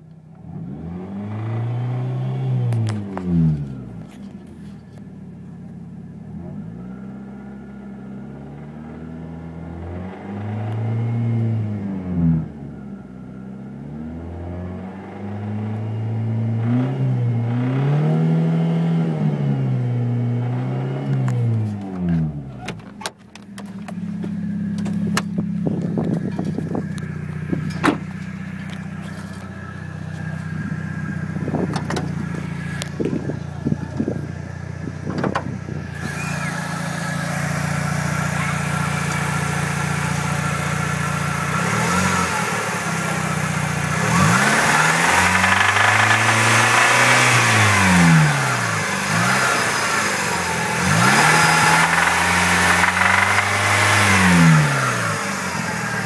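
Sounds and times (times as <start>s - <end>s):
car engine idling and revving: 0.0s - 56.0s
sharp clicks: 51.7s - 53.7s.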